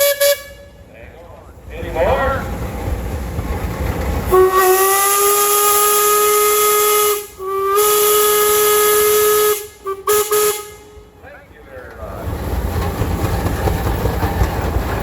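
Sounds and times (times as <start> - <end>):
steam whistle blast: 0.0 - 0.7, 4.3 - 11.0.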